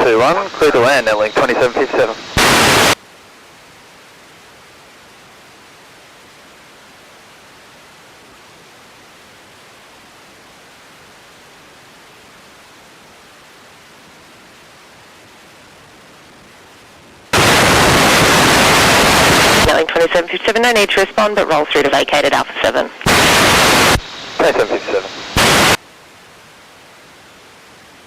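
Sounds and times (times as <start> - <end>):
loud burst of radio static: 0.0 - 3.0, 17.3 - 25.8
radio hiss: 0.0 - 3.0, 17.3 - 25.8.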